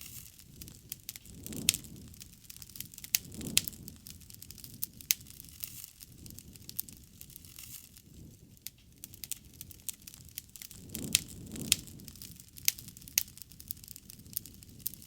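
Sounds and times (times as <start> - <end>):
campfire crackling and popping: 0.0 - 15.0
low rumble of burning: 0.0 - 15.0.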